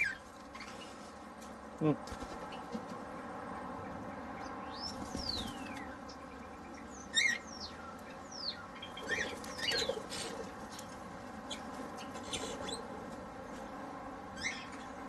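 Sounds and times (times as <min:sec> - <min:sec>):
aviary birds calling: 0:00.0 - 0:15.0
loud rapid bird call: 0:04.7 - 0:05.8.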